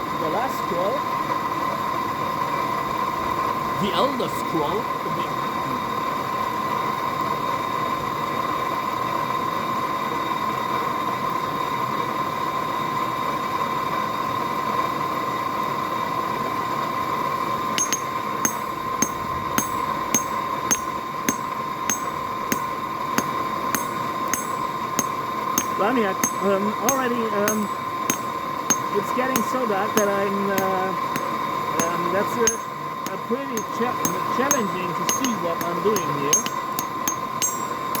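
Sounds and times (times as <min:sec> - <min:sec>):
hammer ringing on anvil: 0:17.8 - 0:38.0.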